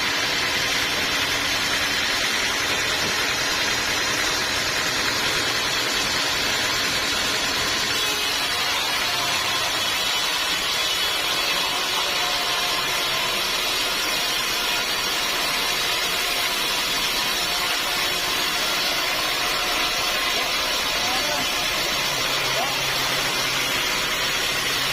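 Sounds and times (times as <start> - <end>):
sawmill machinery running: 0.0 - 24.9.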